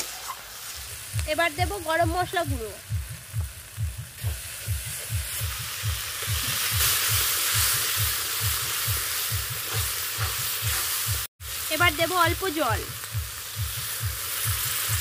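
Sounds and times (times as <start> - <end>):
food sizzling in oil: 0.0 - 15.0
regular low thudding: 1.2 - 6.5
metal spatula stirring: 9.6 - 11.1.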